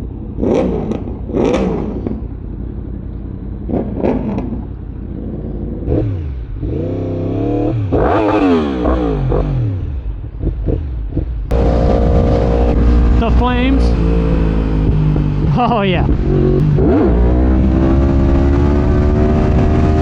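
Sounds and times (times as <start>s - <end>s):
sport-bike engines revving: 0.0s - 20.0s.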